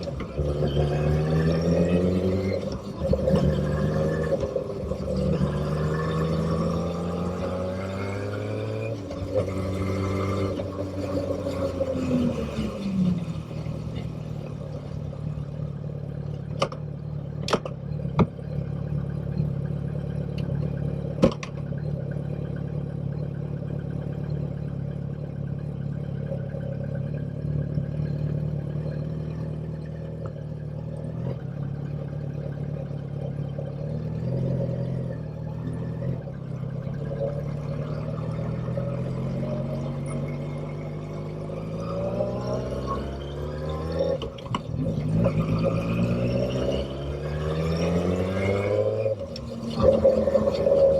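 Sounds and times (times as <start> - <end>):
motorcycle engine slowing to idle: 12.8 - 40.2.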